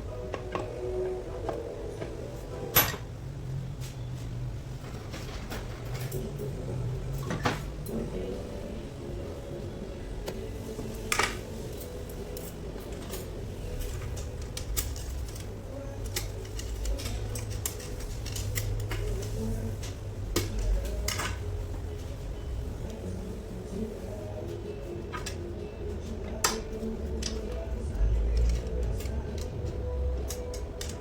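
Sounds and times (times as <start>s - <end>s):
steady low hum: 0.0s - 31.0s
metal tools clinking: 11.2s - 19.3s.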